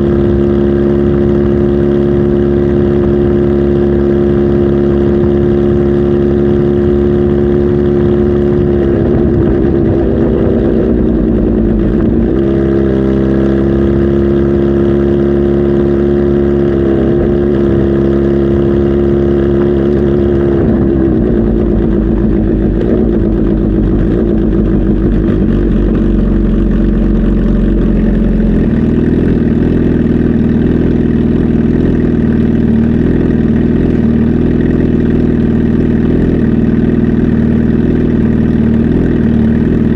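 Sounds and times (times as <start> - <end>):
motorcycle engine running loudly: 0.0 - 39.9.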